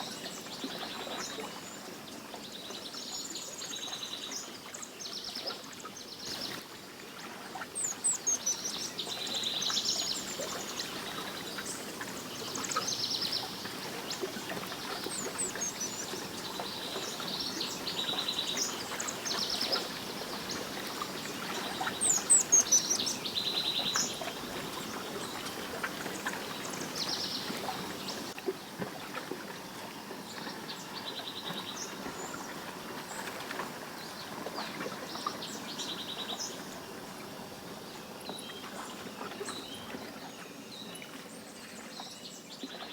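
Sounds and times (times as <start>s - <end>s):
birds singing and calling: 7.8s - 28.4s.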